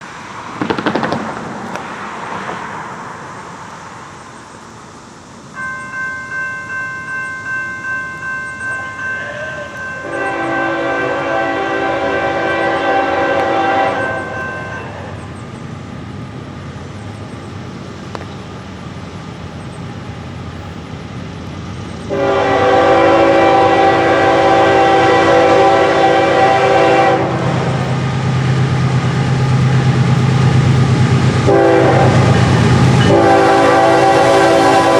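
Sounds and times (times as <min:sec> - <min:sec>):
low train rumble: 0:00.0 - 0:34.9
ringing bell: 0:05.6 - 0:10.3, 0:14.0 - 0:15.2
locomotive air horn: 0:08.8 - 0:15.2, 0:22.1 - 0:27.9, 0:31.4 - 0:34.9.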